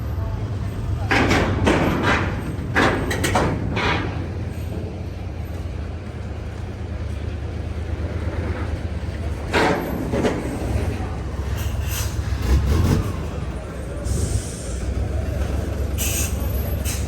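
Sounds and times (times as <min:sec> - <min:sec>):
diesel engine droning: 0:00.0 - 0:17.0
loud clatters: 0:01.0 - 0:04.9
rough mechanical noise: 0:09.4 - 0:17.0.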